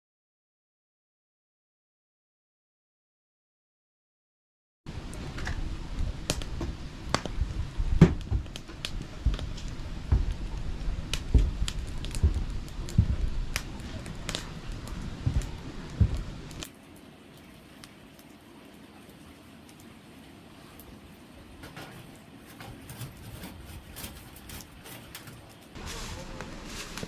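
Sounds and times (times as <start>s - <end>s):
low thumps: 5.4s - 16.6s.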